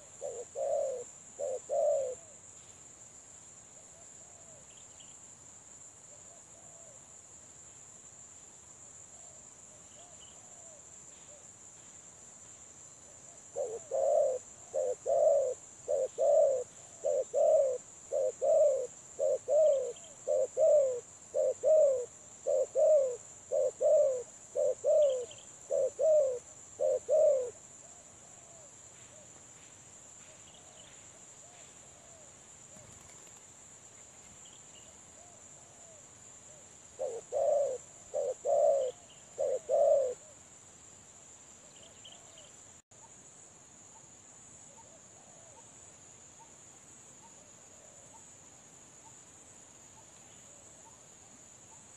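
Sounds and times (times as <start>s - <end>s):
dove cooing: 0.0s - 2.4s, 13.5s - 28.7s, 37.0s - 40.4s
faint dove coos: 0.0s - 2.5s, 3.8s - 4.9s, 6.1s - 7.0s, 9.2s - 11.5s, 13.1s - 29.4s, 34.8s - 40.4s, 44.7s - 45.8s, 47.2s - 48.3s
high insect drone: 0.0s - 51.9s.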